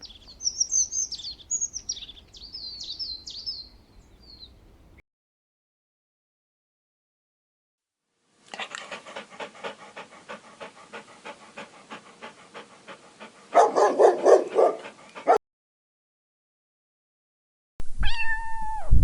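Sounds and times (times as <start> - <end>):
dog panting: 8.5 - 15.4.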